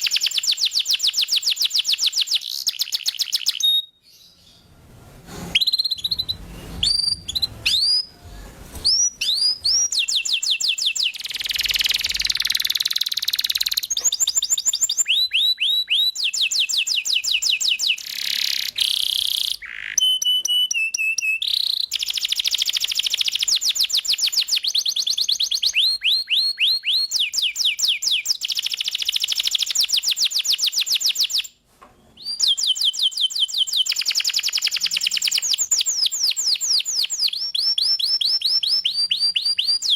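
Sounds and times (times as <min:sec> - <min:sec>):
canary singing trills: 0:05.5 - 0:08.1.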